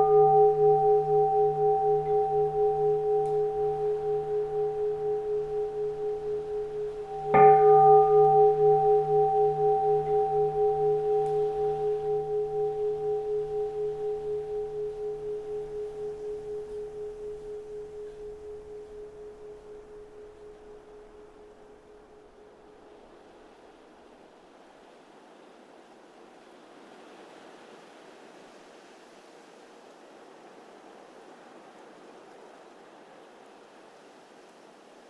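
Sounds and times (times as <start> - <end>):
faint wind noise: 0.0 - 21.8
bowl bell ringing: 0.0 - 22.1.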